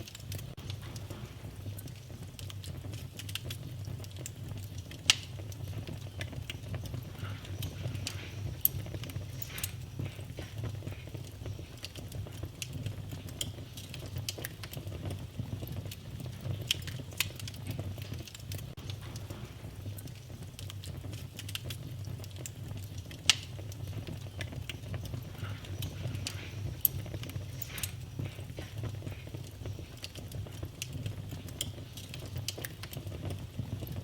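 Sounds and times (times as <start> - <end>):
low rumble of flames: 0.0 - 34.0
wood fire crackling: 0.0 - 34.0
sharp fire pop: 0.3 - 11.1, 16.5 - 29.5.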